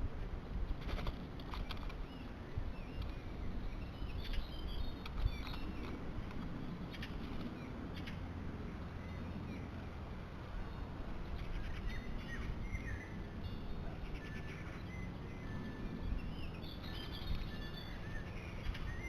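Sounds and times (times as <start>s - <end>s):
steady low rumble: 0.0s - 14.8s
small birds chirping: 0.8s - 9.9s, 10.6s - 19.0s.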